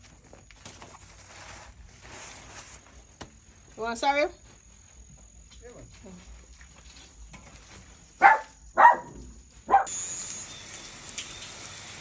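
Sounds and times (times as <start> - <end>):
dog barking: 8.2 - 9.9.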